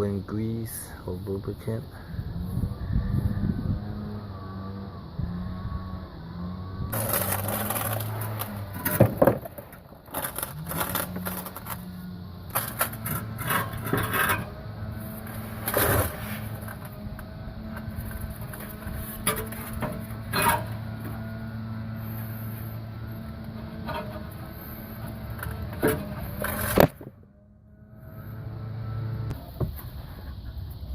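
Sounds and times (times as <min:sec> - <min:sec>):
steady low hum: 0:00.0 - 0:30.9
metal clanks and scraping: 0:06.9 - 0:27.0.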